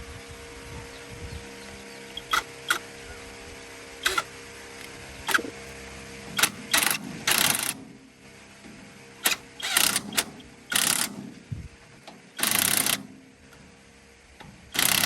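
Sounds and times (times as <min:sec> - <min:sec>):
steady hum: 0:00.0 - 0:15.0
hand tools clicking and knocking: 0:04.0 - 0:04.3, 0:06.3 - 0:07.8, 0:09.2 - 0:11.3, 0:14.7 - 0:15.0
rattling of tools: 0:04.0 - 0:08.0, 0:08.6 - 0:13.7, 0:14.4 - 0:15.0.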